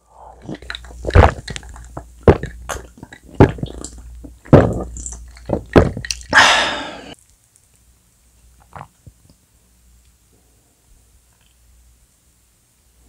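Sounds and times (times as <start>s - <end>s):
crunchy chewing bites: 0.3s - 6.4s
sticky wet squelches: 0.4s - 6.4s.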